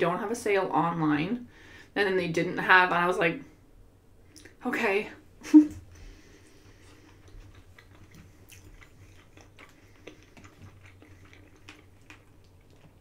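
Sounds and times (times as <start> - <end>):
woman chewing: 5.9 - 13.0
small mouth clicks: 6.8 - 13.0.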